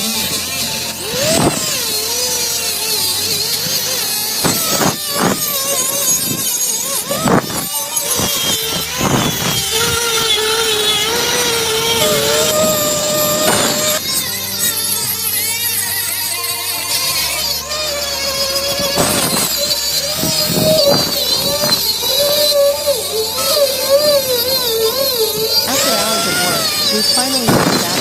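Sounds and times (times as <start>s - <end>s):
small electric power tool running: 0.0s - 28.0s.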